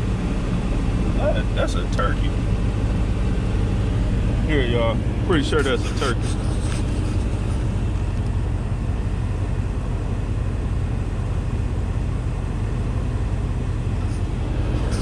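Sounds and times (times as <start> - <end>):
truck engine droning: 0.0 - 15.0.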